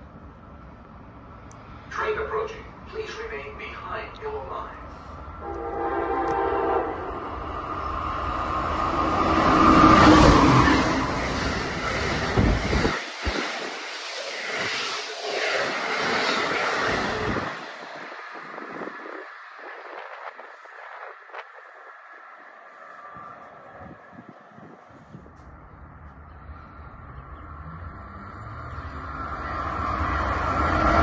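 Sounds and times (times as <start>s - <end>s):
rush of train wheels on rail: 5.0s - 27.0s, 27.6s - 31.0s
train horn: 5.4s - 7.4s.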